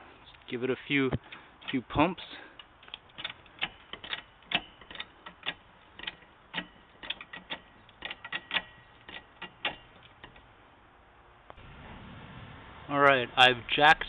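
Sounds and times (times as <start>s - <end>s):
floor jack pumping clicks: 2.6s - 10.5s.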